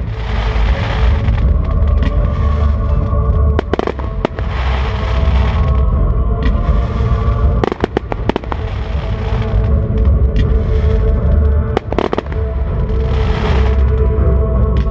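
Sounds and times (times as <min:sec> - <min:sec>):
sharp firework reports: 0:00.0 - 0:05.8
fireworks booming: 0:00.0 - 0:14.1
fireworks crackling: 0:00.0 - 0:14.9.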